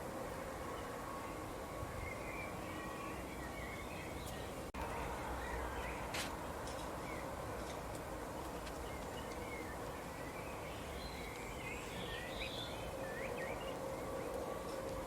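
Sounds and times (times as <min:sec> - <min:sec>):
birds chirping: 0:00.8 - 0:06.1, 0:08.3 - 0:15.0.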